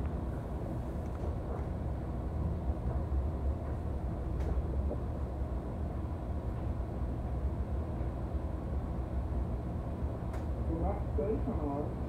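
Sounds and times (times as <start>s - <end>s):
train wheels rumbling on rails: 1.1s - 5.8s.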